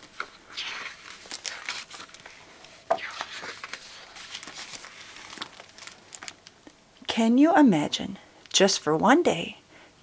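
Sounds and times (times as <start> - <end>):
paper pages rustling: 0.0 - 6.6
page flick: 2.9 - 4.8.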